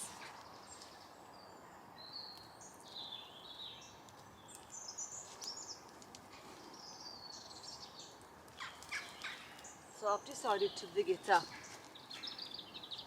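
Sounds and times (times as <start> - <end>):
outdoor background hiss: 0.0 - 13.0
songbird warbling: 8.6 - 13.0.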